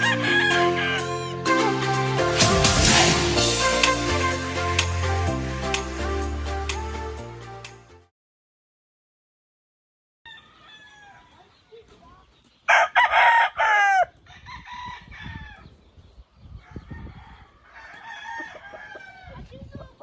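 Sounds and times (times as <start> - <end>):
rooster crowing: 0.0 - 1.4, 10.3 - 11.4, 12.7 - 15.7, 16.6 - 19.4
chickens clucking: 14.1 - 20.0.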